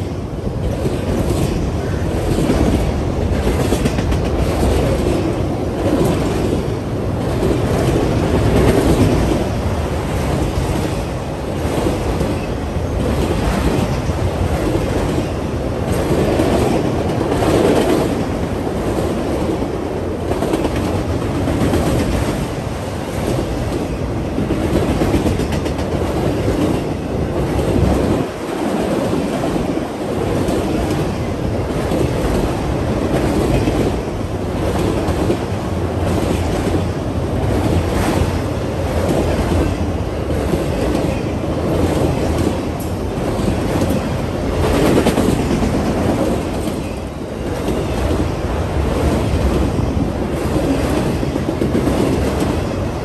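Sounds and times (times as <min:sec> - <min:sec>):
freight train rumbling past: 0:00.0 - 0:53.0.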